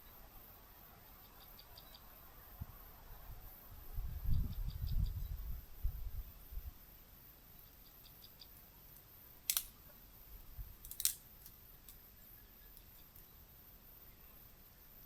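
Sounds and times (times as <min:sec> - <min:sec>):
short sharp clicks: 0:09.5 - 0:09.8, 0:10.9 - 0:11.2.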